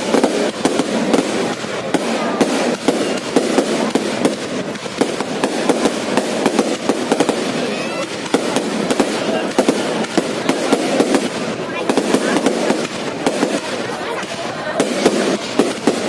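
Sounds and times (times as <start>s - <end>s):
fireworks crackling and banging: 0.0s - 16.0s.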